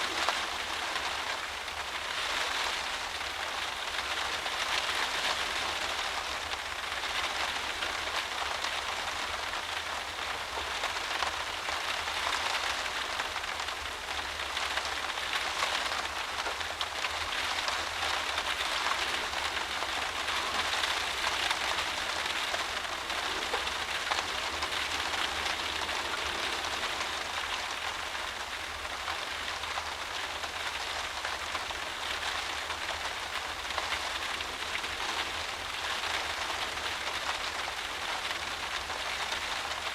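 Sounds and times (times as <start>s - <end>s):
heavy rain on a windowpane: 0.0s - 39.9s.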